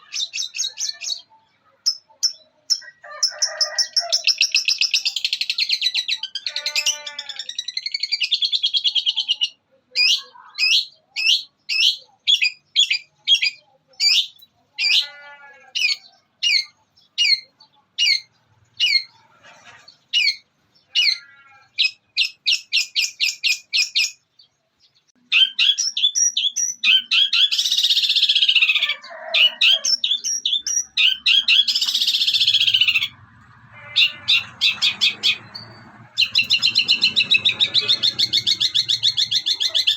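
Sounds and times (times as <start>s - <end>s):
harsh rasping squawks: 2.8s - 8.2s, 12.9s - 24.2s, 26.9s - 39.9s
shrike singing: 25.2s - 39.9s.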